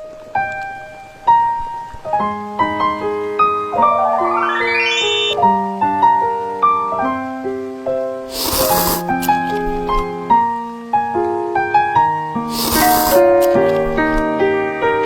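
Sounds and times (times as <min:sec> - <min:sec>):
gentle piano music: 0:00.0 - 0:12.5.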